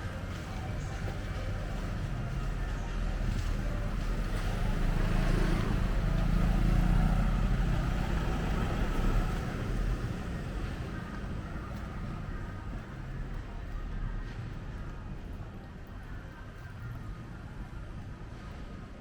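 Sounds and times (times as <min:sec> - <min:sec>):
car passing by: 0:03.2 - 0:12.3.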